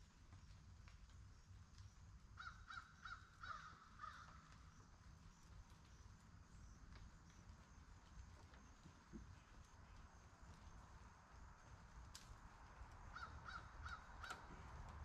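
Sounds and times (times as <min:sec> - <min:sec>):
bird calling faintly: 0:02.4 - 0:04.8, 0:13.0 - 0:14.9.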